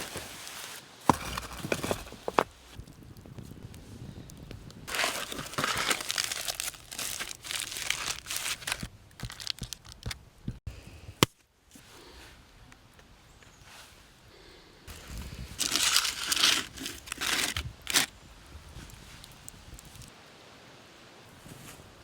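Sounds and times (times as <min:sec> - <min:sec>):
material crinkling and crumpling: 0:00.0 - 0:02.8, 0:04.9 - 0:10.2, 0:14.9 - 0:18.1.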